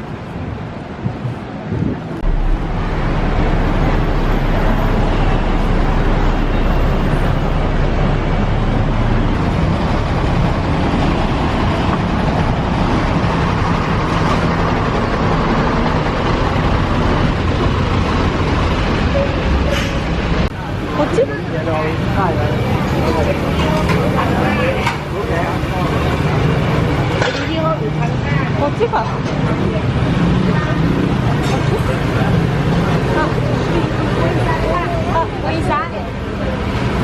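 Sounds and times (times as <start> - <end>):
traffic rushing noise: 0.0 - 37.0
low engine hum: 2.1 - 27.2.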